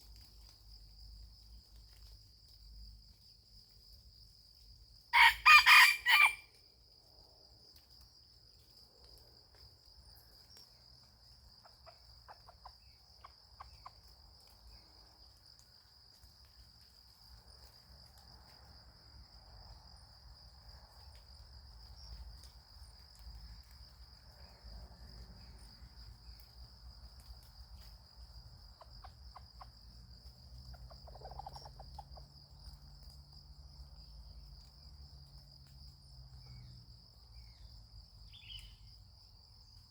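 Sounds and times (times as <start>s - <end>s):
rooster crowing: 5.2s - 6.5s.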